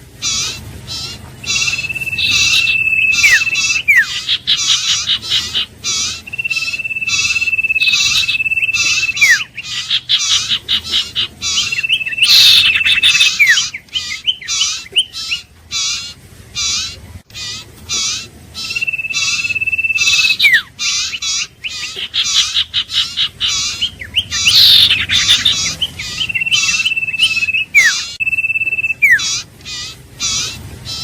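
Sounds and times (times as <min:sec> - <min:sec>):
fast repeated bird chirps: 0:00.0 - 0:31.0
bird whistling with downward slur: 0:01.4 - 0:04.7, 0:06.3 - 0:09.5, 0:11.6 - 0:15.3, 0:18.6 - 0:21.2, 0:23.8 - 0:29.3.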